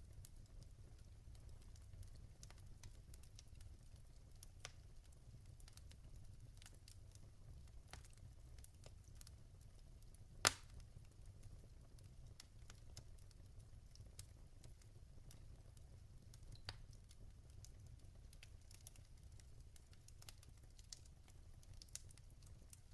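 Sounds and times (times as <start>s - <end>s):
wood fire crackling: 0.0s - 22.9s
log popping: 10.5s - 10.7s.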